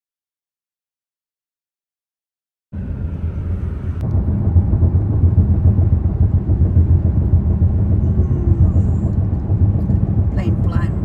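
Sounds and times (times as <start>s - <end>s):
jet plane flying low overhead: 2.8s - 11.0s.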